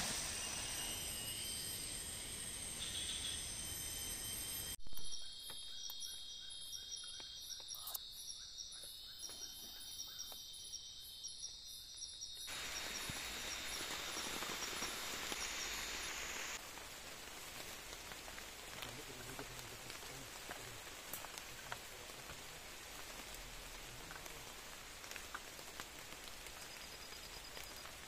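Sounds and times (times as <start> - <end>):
insects droning and chirping: 0.0 - 28.0
rain falling: 12.5 - 28.0.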